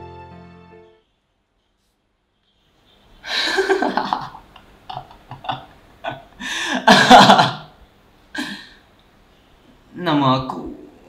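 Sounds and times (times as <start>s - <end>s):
young man laughing: 3.2s - 7.8s.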